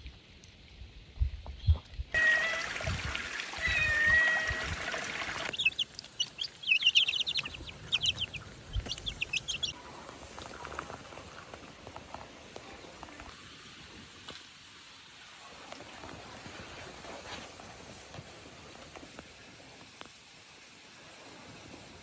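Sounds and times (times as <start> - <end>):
chickens calling: 2.2 - 9.8.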